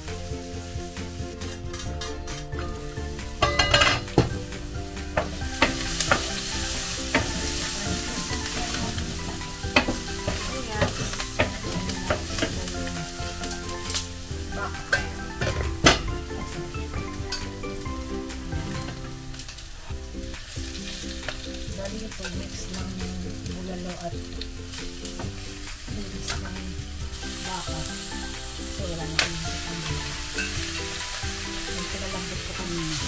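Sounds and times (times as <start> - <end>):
garlic and onions sizzling: 0.0 - 33.0
wooden spoon knocking on pan: 1.9 - 19.2
metal lid clanking: 3.4 - 7.7, 13.8 - 17.6.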